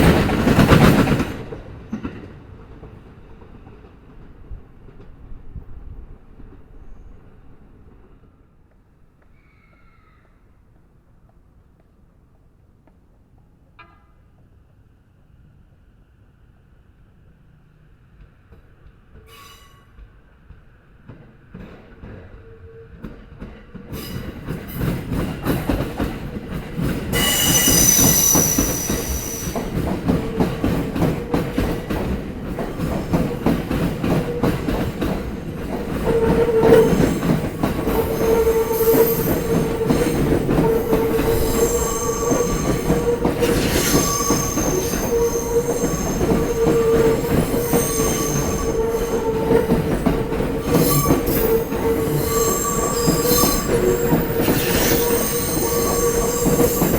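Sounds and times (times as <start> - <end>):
train wheels clattering over joints: 23.0 - 56.9
high-pitched wheel squeal: 27.2 - 29.6, 36.0 - 49.9, 50.6 - 56.9.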